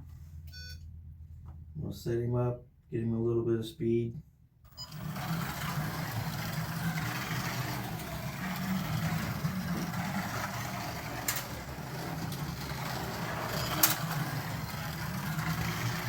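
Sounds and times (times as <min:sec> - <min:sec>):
slot car motor buzzing: 0:04.7 - 0:16.0.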